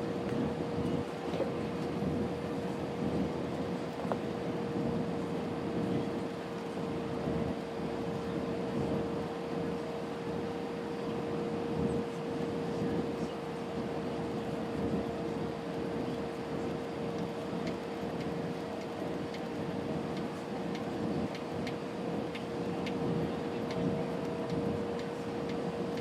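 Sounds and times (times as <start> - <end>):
airliner cabin engine rush: 0.0 - 26.0
constant hum: 0.0 - 26.0
faint light ticks: 24.5 - 26.0.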